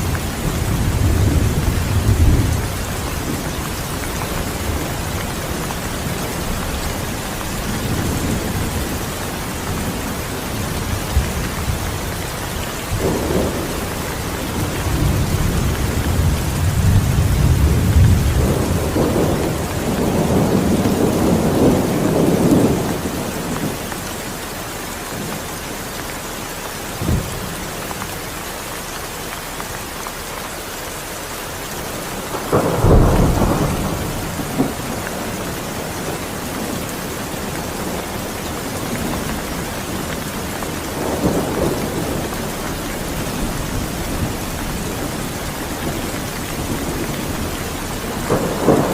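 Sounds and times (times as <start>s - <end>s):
rolling thunder: 0.0s - 24.0s, 32.0s - 48.9s
heavy rain: 0.0s - 48.9s
loud close thunderclap: 12.8s - 23.8s, 32.2s - 48.9s.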